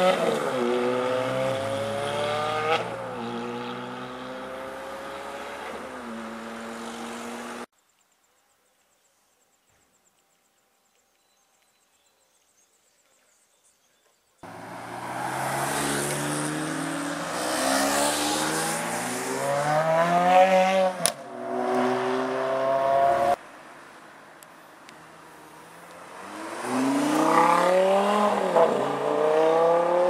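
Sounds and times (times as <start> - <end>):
car engine accelerating hard: 0.0 - 7.7, 14.4 - 23.4, 26.1 - 30.0.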